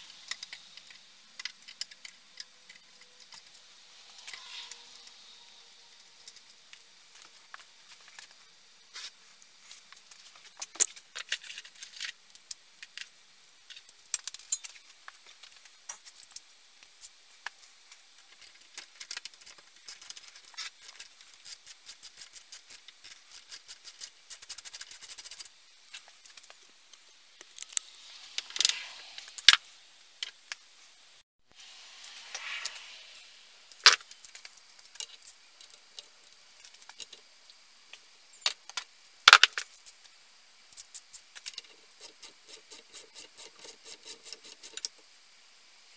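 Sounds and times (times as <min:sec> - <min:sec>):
metallic clicks and scrapes of tools: 0:00.0 - 0:30.6, 0:32.0 - 0:45.1.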